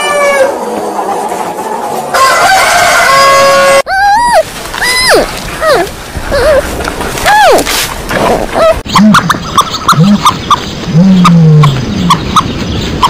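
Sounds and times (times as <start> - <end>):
high animal peeps: 3.9 - 13.0.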